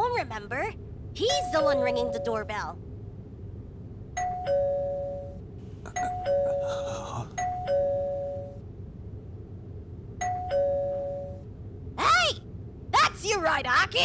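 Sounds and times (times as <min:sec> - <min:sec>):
two-note doorbell chime: 0:04.2 - 0:05.4, 0:07.4 - 0:08.6, 0:10.2 - 0:11.4.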